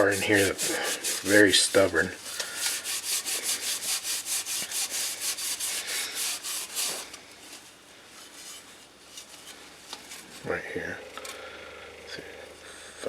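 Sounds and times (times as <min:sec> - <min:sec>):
scouring pad scrubbing metal: 0:00.0 - 0:07.1.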